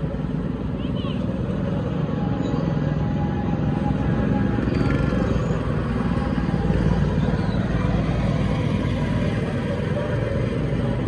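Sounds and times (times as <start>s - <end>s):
go-kart engines running: 0.0s - 11.0s.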